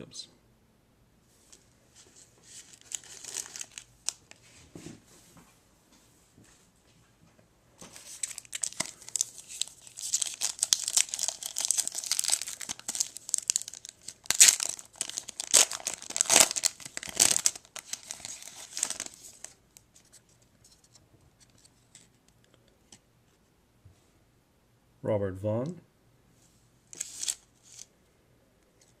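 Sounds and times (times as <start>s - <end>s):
wrapper tearing and crinkling: 2.4s - 4.3s, 8.0s - 19.6s, 26.9s - 27.9s.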